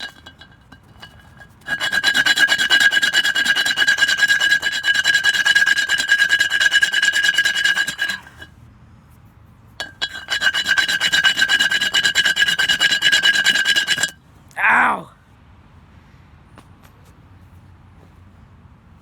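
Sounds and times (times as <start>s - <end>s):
tool grinding wood: 1.0s - 8.5s, 9.8s - 14.1s.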